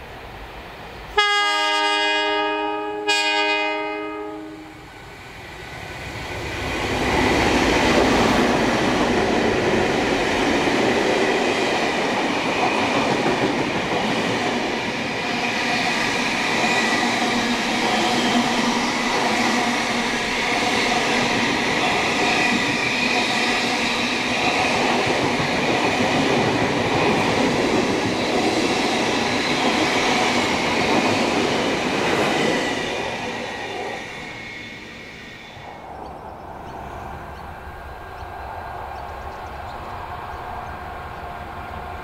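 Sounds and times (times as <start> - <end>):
locomotive horn blasts: 1.2 - 4.8
locomotives passing at speed: 4.8 - 42.0.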